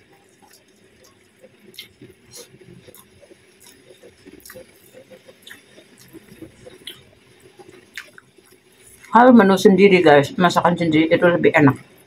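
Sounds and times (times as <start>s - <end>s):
close chewing with wet smacks: 0.0s - 9.2s.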